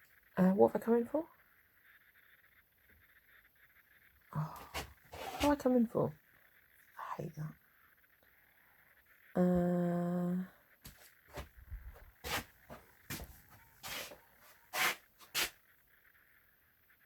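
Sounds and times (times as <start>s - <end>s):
woman humming: 9.4s - 10.5s.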